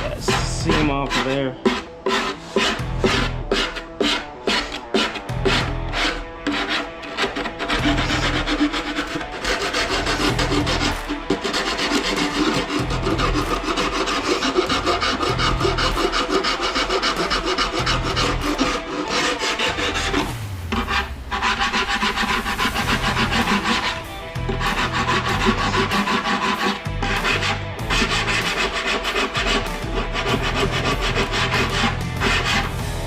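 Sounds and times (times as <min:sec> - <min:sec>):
hand file rasping on foam: 0:00.0 - 0:33.0.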